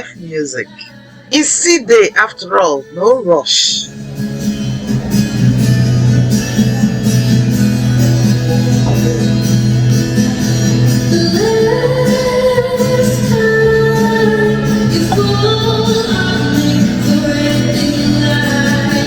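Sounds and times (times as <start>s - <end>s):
person singing long notes: 10.9s - 19.0s.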